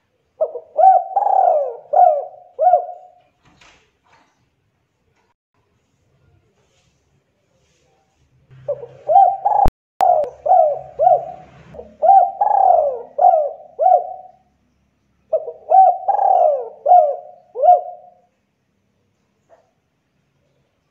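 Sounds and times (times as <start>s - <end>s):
dove cooing: 0.4s - 3.2s, 8.6s - 14.5s, 15.3s - 18.3s.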